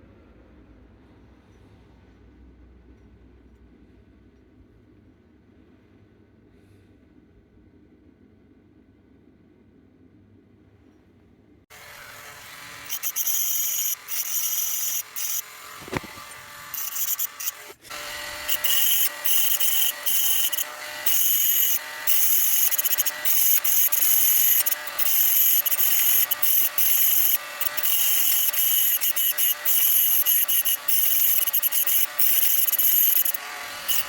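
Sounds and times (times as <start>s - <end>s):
rotary tool whining: 11.7s - 34.0s.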